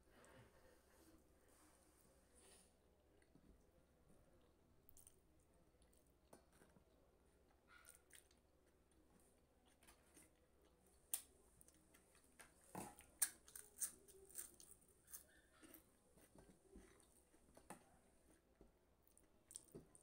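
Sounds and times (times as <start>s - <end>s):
crunching crisp fried snack: 13.0s - 15.4s.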